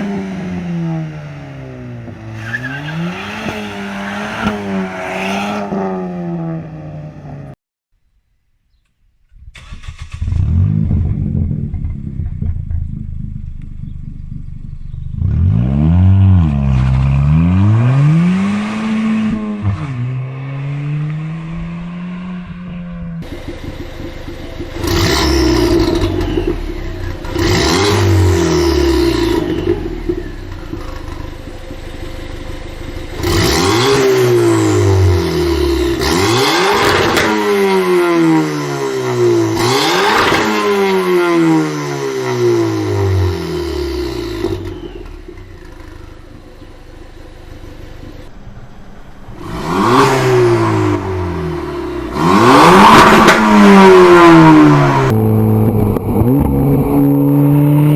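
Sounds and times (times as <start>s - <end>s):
car engine revving: 0.0s - 7.6s, 9.5s - 57.9s.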